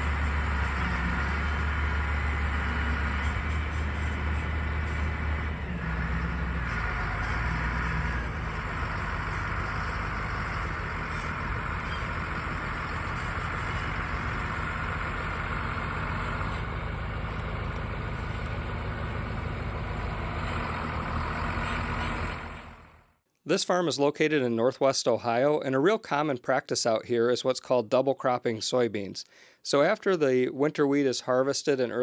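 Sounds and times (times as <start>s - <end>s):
low diesel engine drone: 0.0s - 23.2s.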